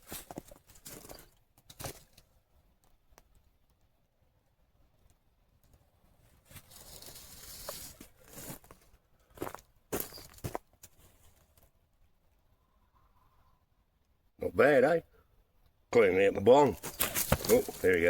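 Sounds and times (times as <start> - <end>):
rustling in dry leaves: 6.4 - 8.8, 16.8 - 18.0
twigs snapping: 16.8 - 18.0.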